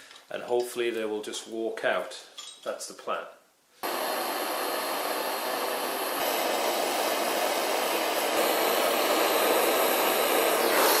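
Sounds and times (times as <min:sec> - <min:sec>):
gas torch hissing: 0:03.8 - 0:11.0.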